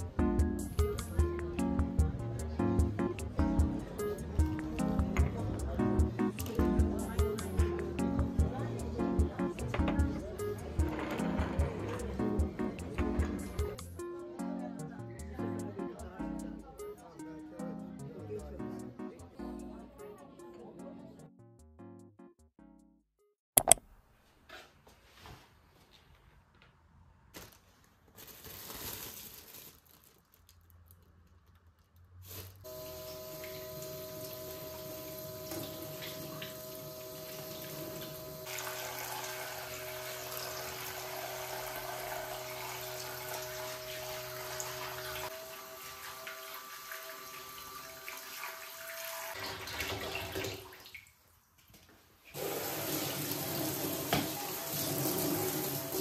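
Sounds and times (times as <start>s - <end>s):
tap water running into sink: 32.8s - 51.0s, 52.4s - 56.0s.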